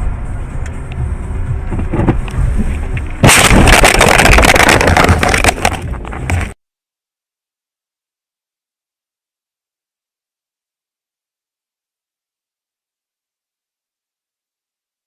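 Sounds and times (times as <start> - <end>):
car engine and road rumble: 0.0 - 6.6
crunching scraping and rattling: 1.7 - 6.6
car crash impact: 3.2 - 6.6.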